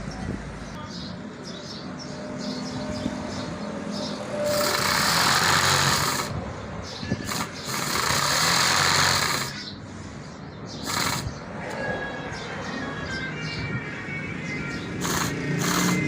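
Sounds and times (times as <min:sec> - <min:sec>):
small electric motor hissing: 0:04.5 - 0:06.4, 0:07.2 - 0:09.6, 0:10.8 - 0:11.4, 0:15.0 - 0:16.0.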